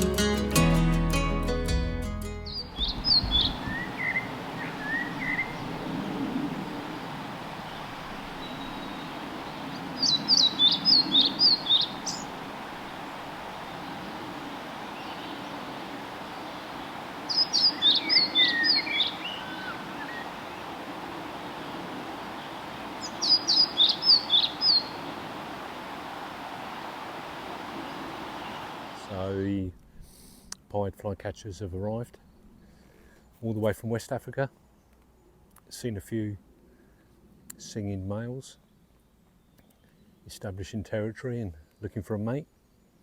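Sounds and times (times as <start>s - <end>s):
flycatcher singing: 2.4s - 29.2s
woodland bird calls: 2.5s - 29.4s.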